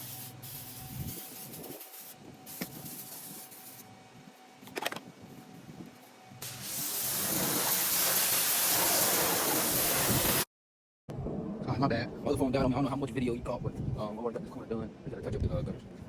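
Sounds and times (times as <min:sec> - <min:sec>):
pressure washer spraying: 0:06.4 - 0:10.5.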